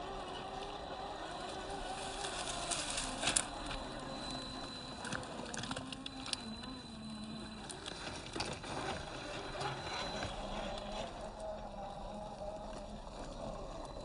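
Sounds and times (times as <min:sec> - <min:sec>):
electric motor whine: 0:00.0 - 0:14.0
tyres crunching on stones: 0:01.5 - 0:05.7.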